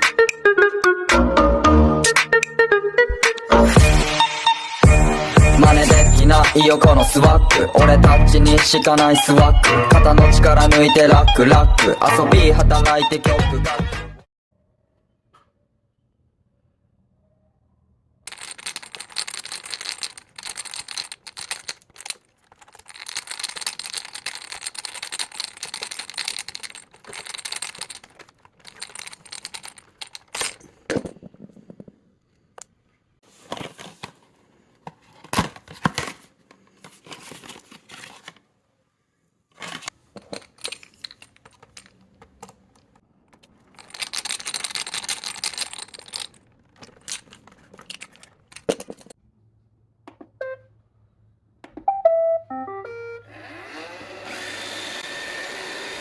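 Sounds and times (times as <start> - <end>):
small plastic parts clicking: 18.3 - 31.9, 40.1 - 49.2.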